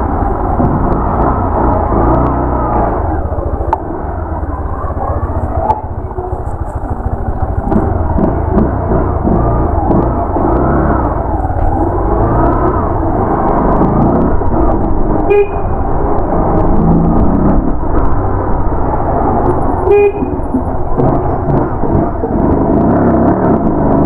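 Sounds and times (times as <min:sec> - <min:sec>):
motorcycle engine and road noise: 0:00.0 - 0:24.0
vehicle horn toots: 0:15.2 - 0:15.8, 0:19.8 - 0:20.6.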